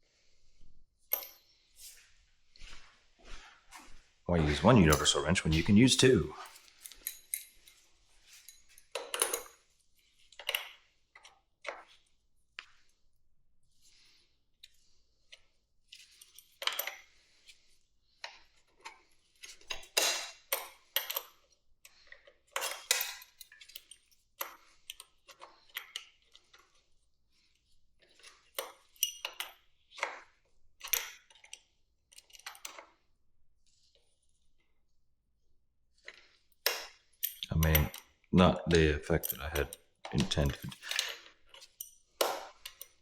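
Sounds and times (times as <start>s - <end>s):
wrenches clanking on metal: 4.4s - 7.5s, 37.2s - 38.0s, 38.7s - 43.0s.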